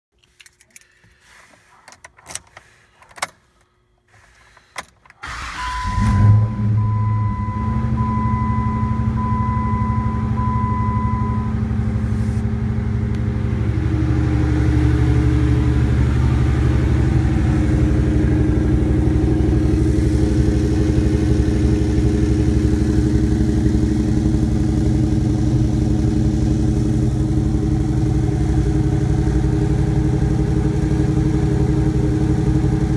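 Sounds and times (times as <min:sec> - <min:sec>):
engine starting and idling: 0:04.6 - 0:08.5.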